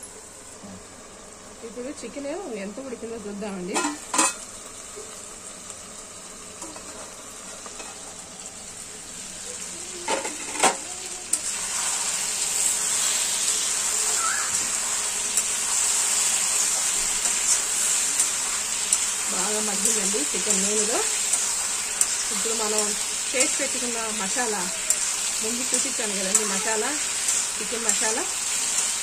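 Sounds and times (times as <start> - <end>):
chicken sizzling in hot oil: 0.0 - 29.0.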